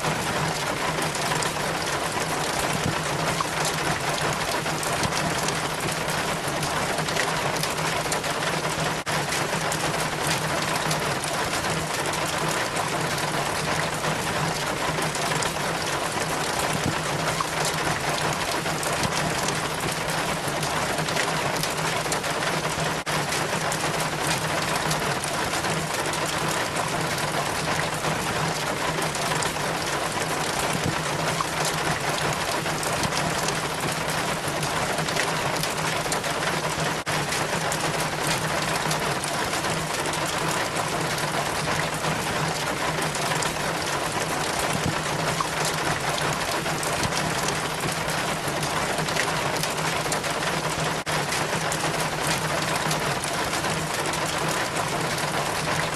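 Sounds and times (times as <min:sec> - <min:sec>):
water trickling down rain chain: 0:00.0 - 0:55.9.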